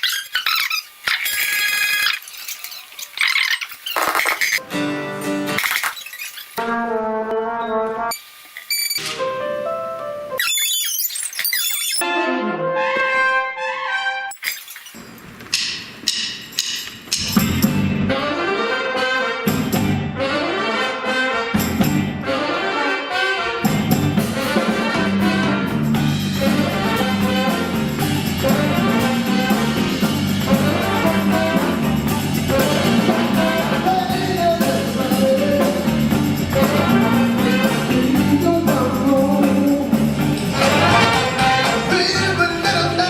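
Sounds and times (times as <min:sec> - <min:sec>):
band with horn section playing: 0:06.6 - 0:08.1, 0:12.0 - 0:14.3, 0:17.9 - 0:38.6, 0:40.4 - 0:43.0
drum and percussion hits: 0:15.5 - 0:17.9, 0:25.8 - 0:42.0
vocals: 0:30.5 - 0:43.0.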